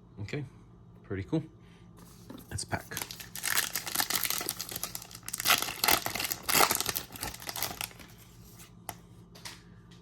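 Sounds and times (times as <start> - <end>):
card pack wrapper crinkling: 2.3 - 8.6.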